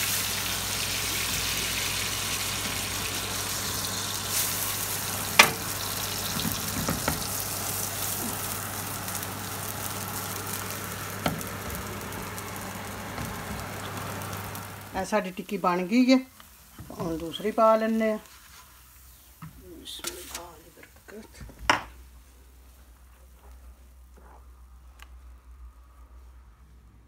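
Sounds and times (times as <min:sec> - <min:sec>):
food sizzling in a frying pan: 0:00.0 - 0:21.3.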